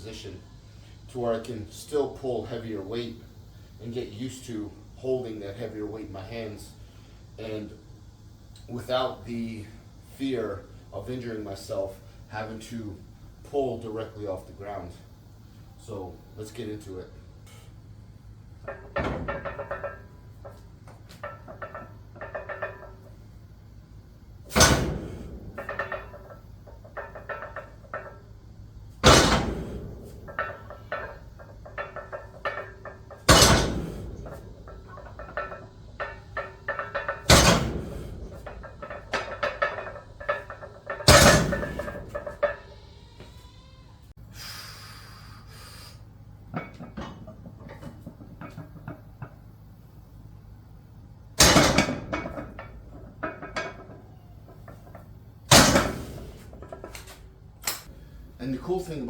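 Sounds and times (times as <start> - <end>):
barbell clanking on steel pins: 16.8 - 43.3, 46.3 - 59.0
weight plates rattling: 18.3 - 43.0, 46.3 - 59.0.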